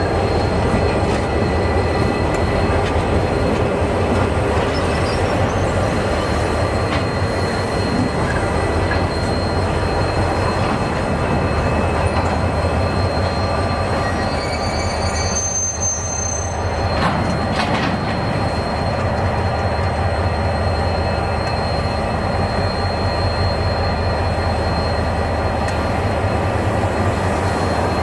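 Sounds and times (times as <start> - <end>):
train wheels rumbling on rail: 0.0 - 28.0
wheel squeal: 0.0 - 28.0.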